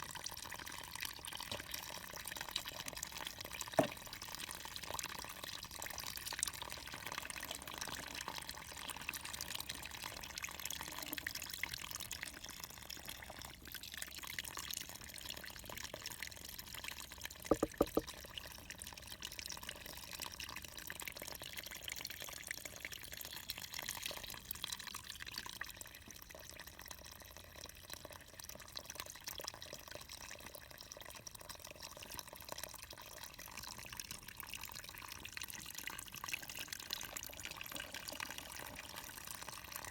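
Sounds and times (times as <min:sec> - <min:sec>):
water trickling and splashing: 0:00.0 - 0:39.9
sharp knocks: 0:17.5 - 0:18.0.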